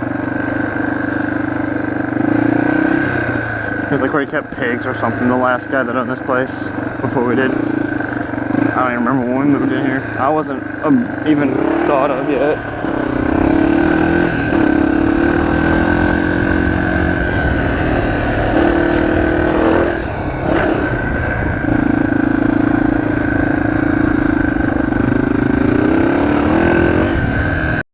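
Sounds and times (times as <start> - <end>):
motorcycle engine running: 0.0 - 27.8.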